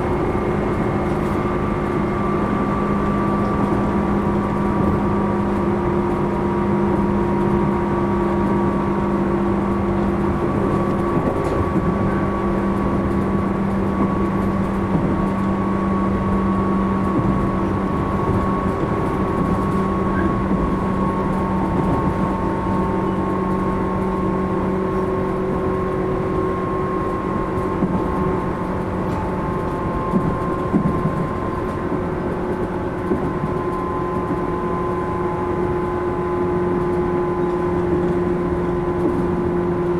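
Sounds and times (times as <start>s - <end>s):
train wheels rumbling on rails: 0.0s - 39.9s
train bumps: 9.3s - 34.6s.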